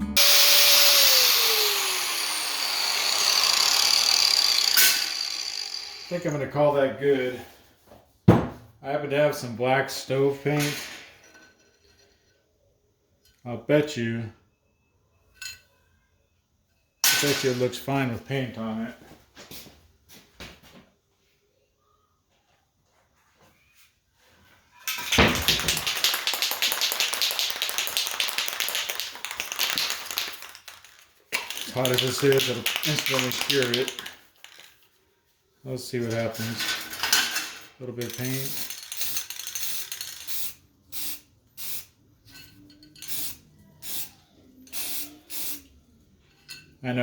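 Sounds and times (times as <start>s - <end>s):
aerosol can rattling: 24.9s - 34.9s, 38.0s - 40.6s.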